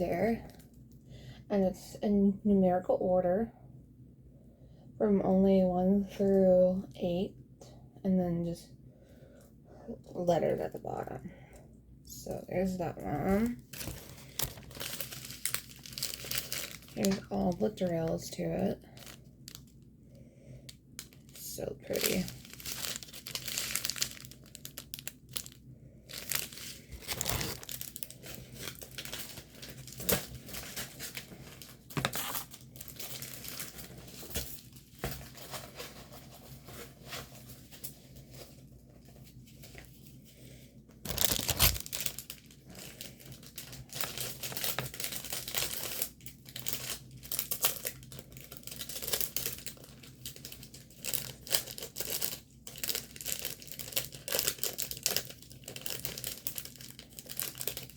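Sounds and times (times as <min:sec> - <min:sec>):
plastic packaging crinkling: 0:13.2 - 0:19.8, 0:20.7 - 0:40.2, 0:41.0 - 0:57.9.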